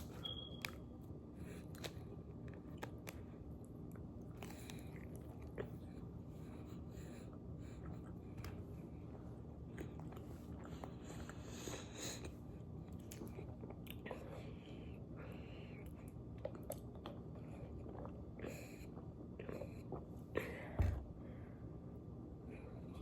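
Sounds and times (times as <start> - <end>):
low steady hum: 0.0 - 23.0
person chewing crunchy food: 1.4 - 14.9, 15.7 - 20.1.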